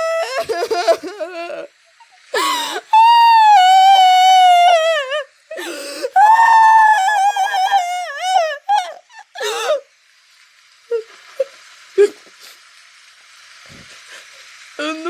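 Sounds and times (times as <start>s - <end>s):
high-pitched cartoon voice crying: 0.0s - 1.7s.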